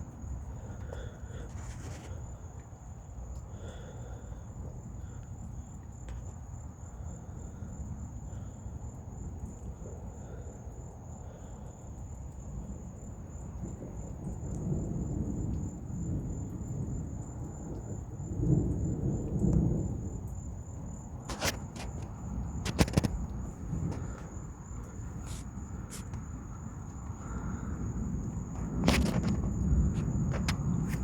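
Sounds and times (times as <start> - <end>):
insects trilling: 0.0 - 31.0
thunder rumbling: 13.2 - 31.0.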